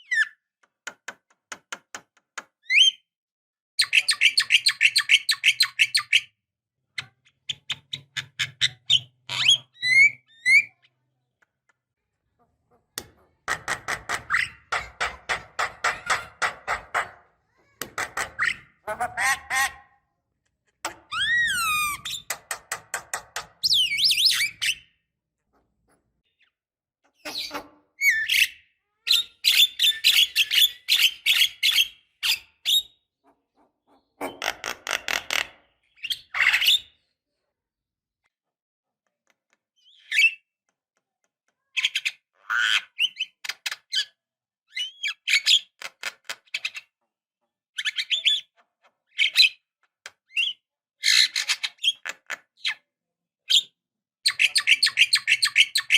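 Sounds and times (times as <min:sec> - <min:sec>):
bird singing harsh chatter: 0:23.6 - 0:24.9, 0:54.3 - 0:55.9.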